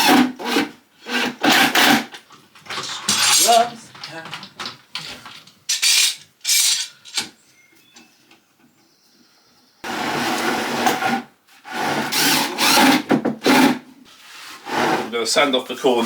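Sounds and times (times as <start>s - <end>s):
power tool cutting wood: 11.8s - 13.7s.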